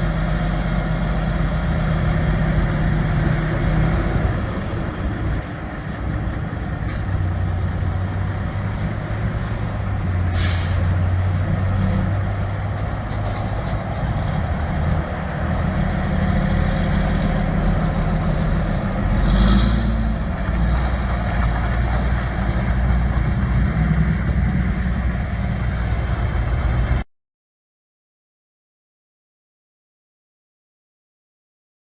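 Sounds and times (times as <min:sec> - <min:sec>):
diesel truck engine running: 0:00.0 - 0:27.0
air brake hiss: 0:10.3 - 0:10.9.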